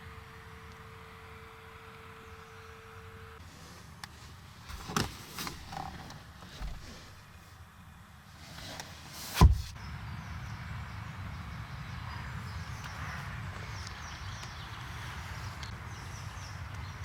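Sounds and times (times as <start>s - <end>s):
car door shutting: 4.7s - 7.6s, 8.6s - 9.8s.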